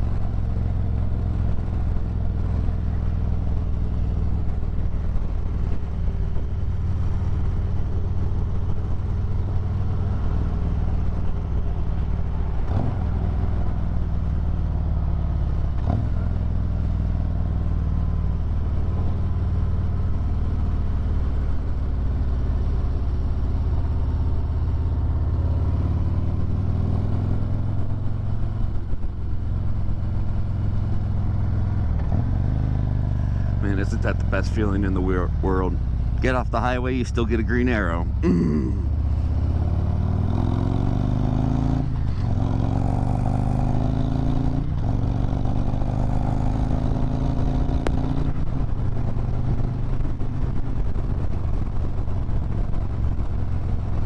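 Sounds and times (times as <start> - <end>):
motorcycle engine running: 18.4 - 54.0.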